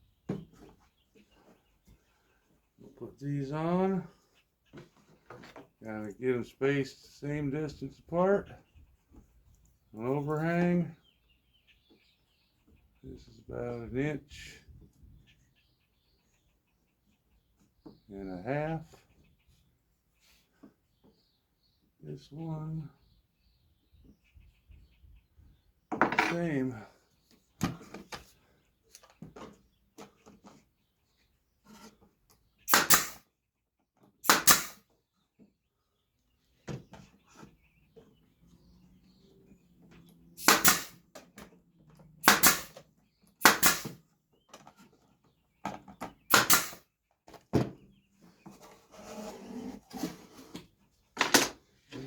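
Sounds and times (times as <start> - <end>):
nail gun firing: 32.7 - 33.2, 34.2 - 34.8, 40.4 - 41.0, 42.2 - 42.8, 43.4 - 44.0, 46.3 - 46.8.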